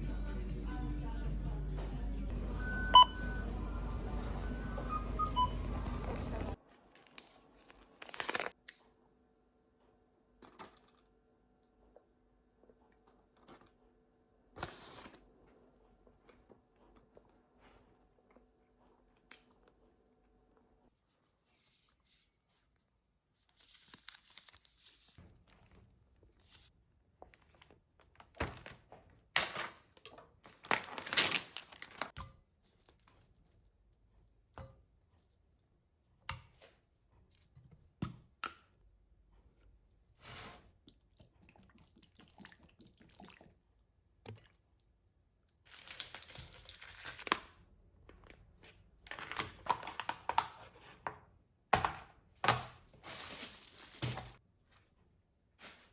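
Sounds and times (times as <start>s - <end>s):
food packaging crinkling: 6.0s - 8.6s, 30.5s - 32.2s, 45.6s - 47.5s, 49.1s - 50.6s, 53.0s - 54.4s.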